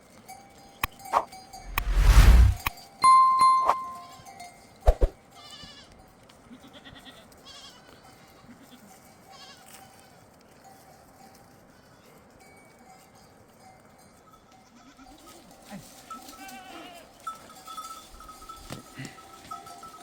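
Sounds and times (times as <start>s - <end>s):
livestock bell clanking: 3.0s - 4.2s, 17.1s - 20.0s
goats bleating: 16.4s - 17.0s.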